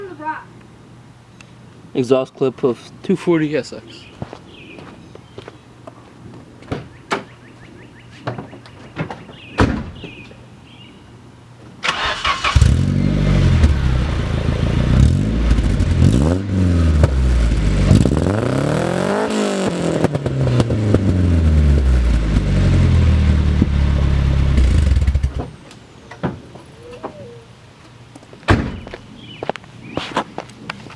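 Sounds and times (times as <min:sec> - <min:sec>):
car engine revving: 0:11.9 - 0:25.5.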